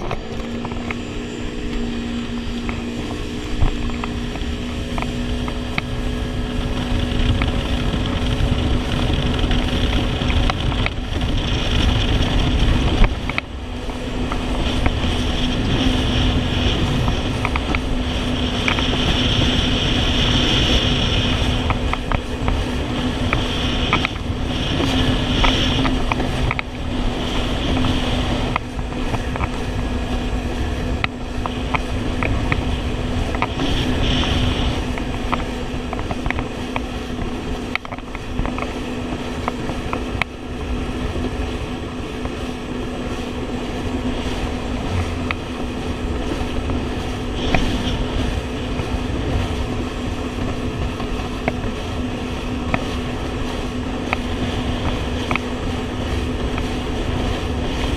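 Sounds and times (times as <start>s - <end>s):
jet ski engine running: 0.0s - 57.9s
water and wind hiss: 0.0s - 57.9s.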